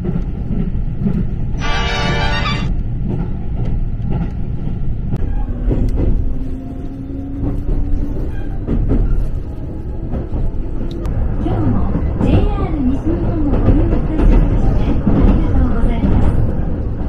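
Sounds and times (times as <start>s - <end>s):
train rumbling: 0.0s - 17.0s
train hum rising in pitch: 1.5s - 2.9s.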